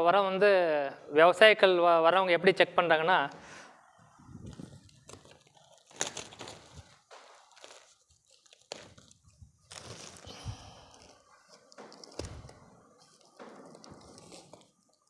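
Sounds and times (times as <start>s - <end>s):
hands crunching loose compost: 4.4s - 12.7s.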